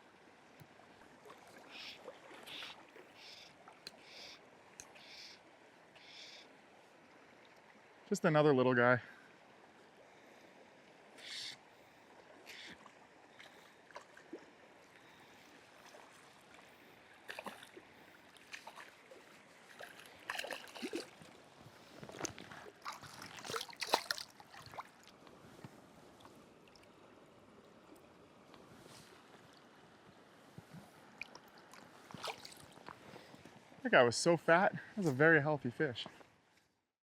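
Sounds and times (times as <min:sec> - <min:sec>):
river water running: 0:00.0 - 0:36.6
water splashing in shallows: 0:01.0 - 0:05.3, 0:11.2 - 0:26.9, 0:31.0 - 0:33.4.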